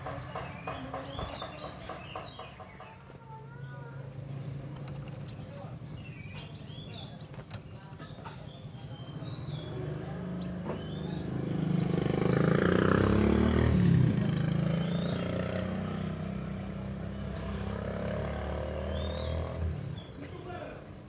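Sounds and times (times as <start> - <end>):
high bird chirps: 0.0 - 13.2, 14.2 - 20.2
vehicle engine passing: 8.9 - 20.2.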